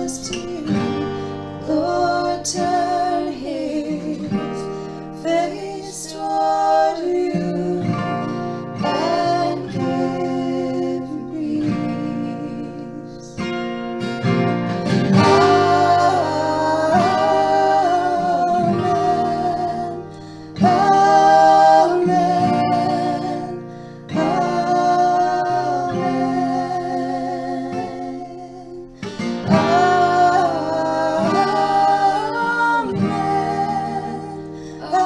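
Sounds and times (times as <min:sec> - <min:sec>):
person singing: 0:00.0 - 0:13.6, 0:14.8 - 0:35.0
acoustic guitar strumming: 0:00.0 - 0:35.0.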